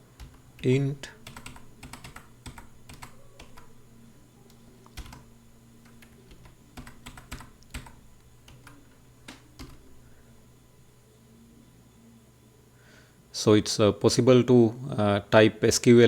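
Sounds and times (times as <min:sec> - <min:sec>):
computer keyboard typing: 0:00.2 - 0:03.8, 0:04.5 - 0:09.8.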